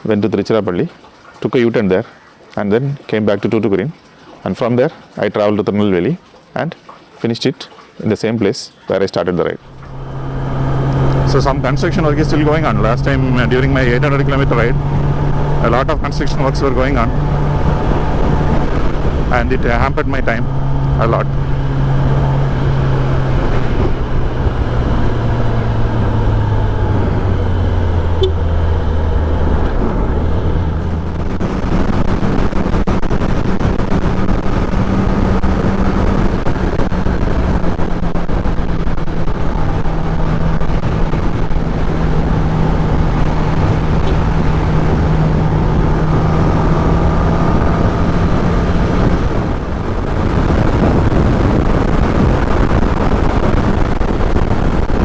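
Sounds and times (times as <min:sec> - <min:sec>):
motorcycle engine running: 0:09.6 - 0:55.0
wind and road rush: 0:09.6 - 0:55.0.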